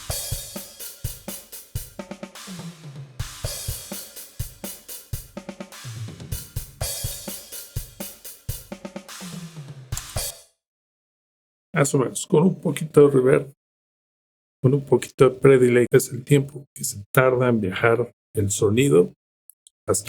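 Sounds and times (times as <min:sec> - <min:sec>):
drum kit groove: 0:00.0 - 0:10.4
descending tom fill: 0:02.3 - 0:08.0.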